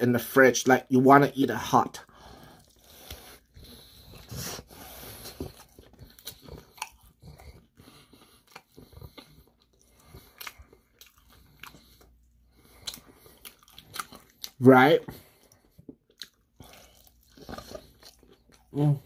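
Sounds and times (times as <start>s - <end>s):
crunching fried chicken: 2.6s - 7.7s, 8.4s - 15.0s.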